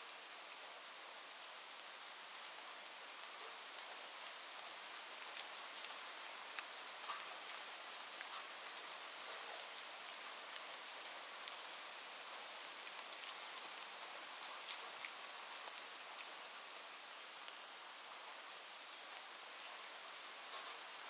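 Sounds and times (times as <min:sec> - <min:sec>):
rain hiss: 0:00.0 - 0:21.0
raindrop ticks: 0:03.2 - 0:10.7, 0:20.5 - 0:20.8.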